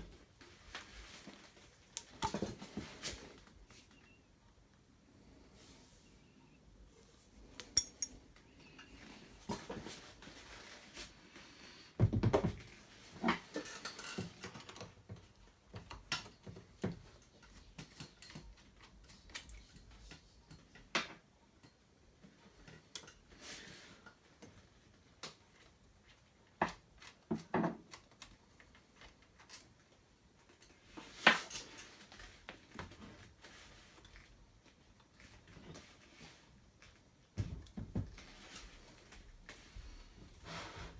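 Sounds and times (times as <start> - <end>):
metal parts and tools clinking: 7.6 - 8.2.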